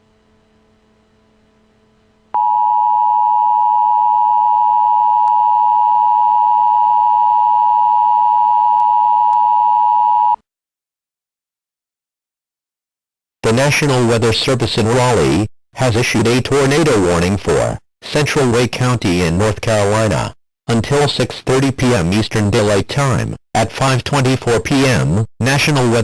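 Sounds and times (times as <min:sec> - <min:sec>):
faint hum: 0:00.0 - 0:10.4.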